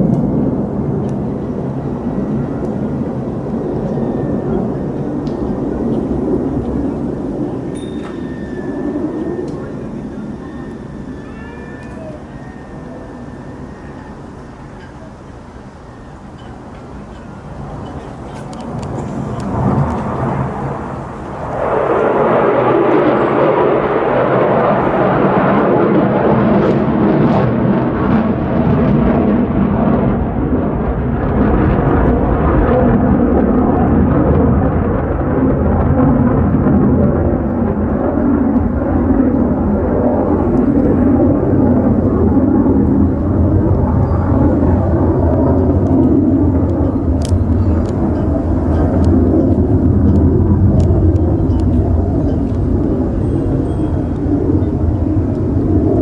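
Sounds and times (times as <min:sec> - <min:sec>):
fighter jet engine rumbling: 0:00.0 - 0:56.0
faint clicks: 0:45.8 - 0:48.0.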